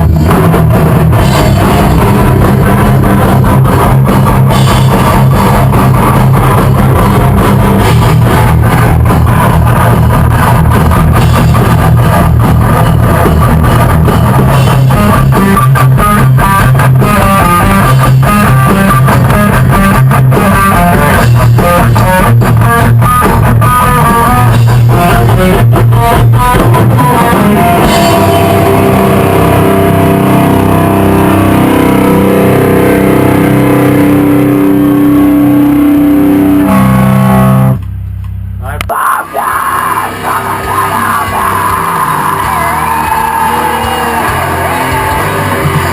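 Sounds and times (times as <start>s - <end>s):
drums playing: 0.0s - 30.7s, 38.9s - 45.9s
bass guitar: 0.0s - 45.9s
electric guitar: 0.0s - 45.9s.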